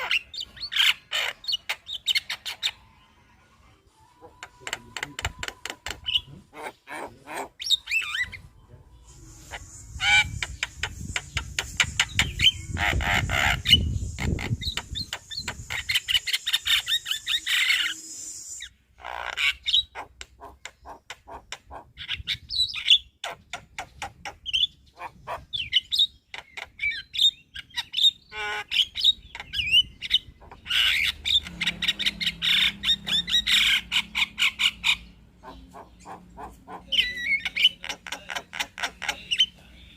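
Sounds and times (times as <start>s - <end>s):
myna bird chattering and whistling: 0.0s - 2.9s, 4.1s - 39.9s
harsh rasping bird call: 9.4s - 22.1s.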